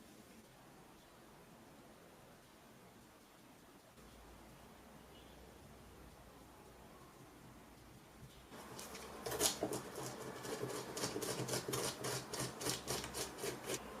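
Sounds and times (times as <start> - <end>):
rapid scraping strokes: 8.5 - 13.9.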